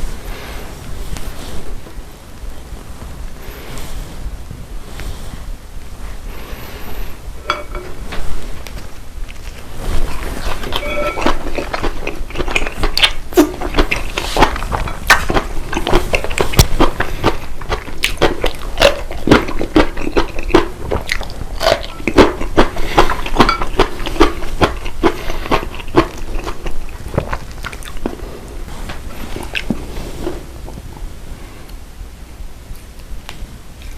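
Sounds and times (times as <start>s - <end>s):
person chewing crunchy food: 9.2s - 30.6s.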